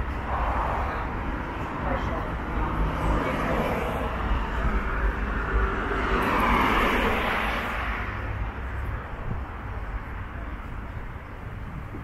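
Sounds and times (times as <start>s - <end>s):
vehicle passing: 0.0s - 8.7s
low traffic rumble: 0.0s - 12.0s.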